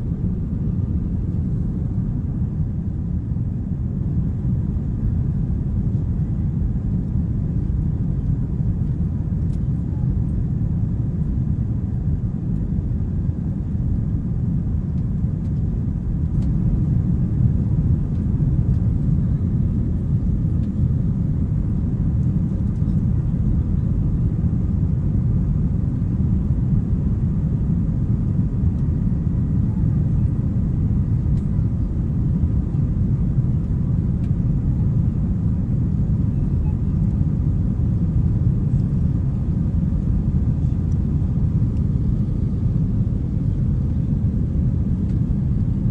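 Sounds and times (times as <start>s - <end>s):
jet engines running: 14.9s - 45.9s.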